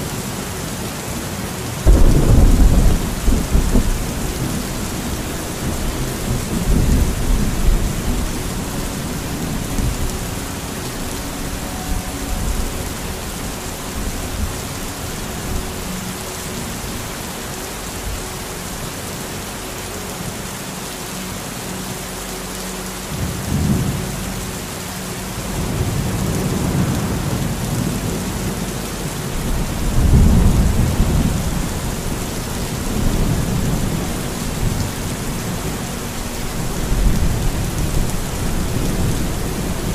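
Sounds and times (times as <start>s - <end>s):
heavy rain: 0.0s - 39.9s
thunder rolling: 1.8s - 10.4s, 29.4s - 35.9s.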